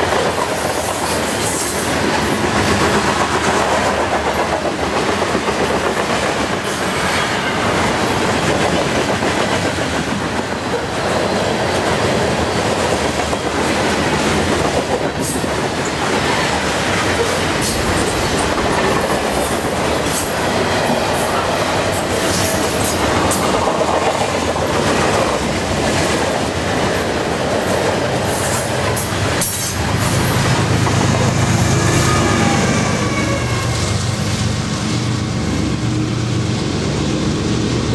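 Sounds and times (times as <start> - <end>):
diesel locomotive engine rumble: 0.0 - 37.9
freight train rumbling past: 0.0 - 37.9
high wheel squeal: 31.6 - 34.0.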